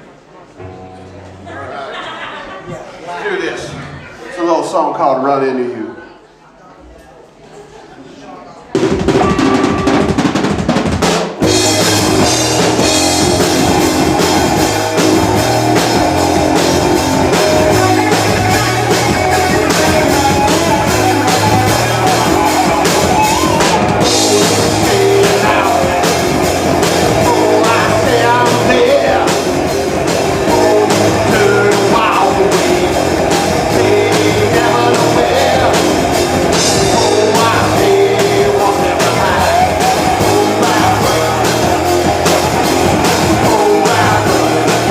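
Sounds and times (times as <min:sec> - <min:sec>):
drum kit beat: 0:08.7 - 0:44.9
electric guitar: 0:11.4 - 0:44.9
person singing: 0:11.7 - 0:44.9.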